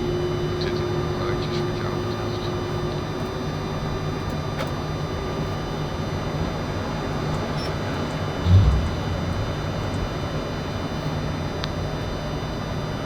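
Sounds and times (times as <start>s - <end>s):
low engine and air conditioning hum: 0.0s - 13.0s
faint electrical whines: 6.4s - 11.3s.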